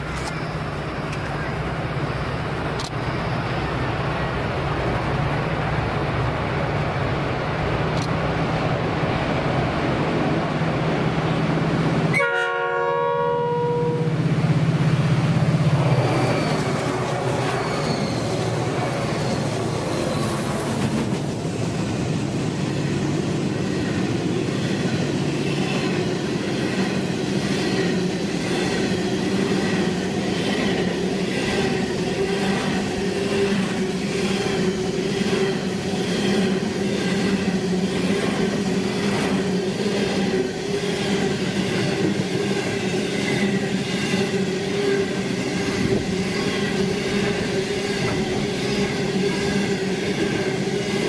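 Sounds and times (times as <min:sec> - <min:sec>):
diesel locomotive engines running: 0:00.0 - 0:12.8, 0:13.7 - 0:51.0
locomotive horn chord: 0:12.1 - 0:14.2.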